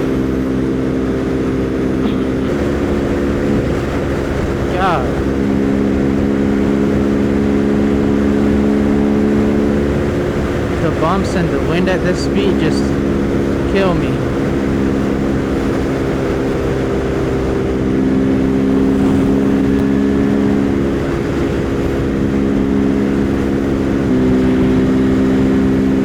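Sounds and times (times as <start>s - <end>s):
motorcycle engine cruising: 0.0s - 26.0s.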